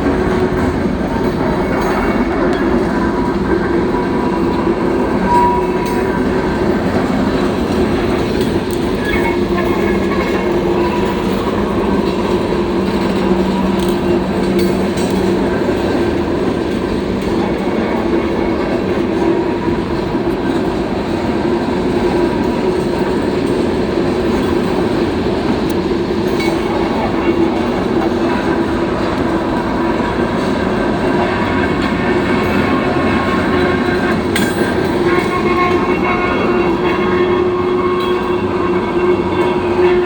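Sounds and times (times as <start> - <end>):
wheel and rail rumbling: 0.0 - 40.0.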